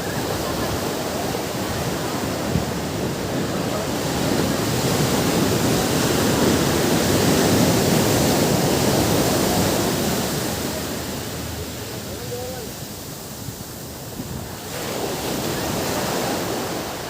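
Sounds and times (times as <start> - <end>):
ocean waves breaking on beach: 0.0 - 17.0.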